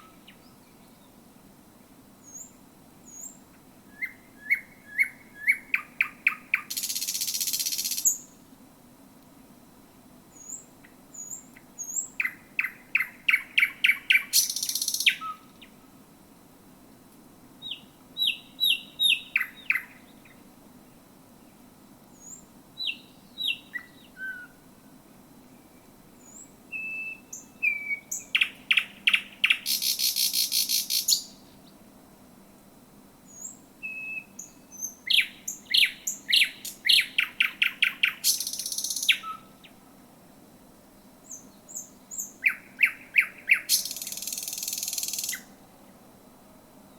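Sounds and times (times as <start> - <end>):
nightingale singing: 2.2 - 8.4, 10.3 - 15.8, 17.6 - 20.4, 21.4 - 24.7, 25.4 - 31.8, 33.2 - 39.8, 41.1 - 46.0.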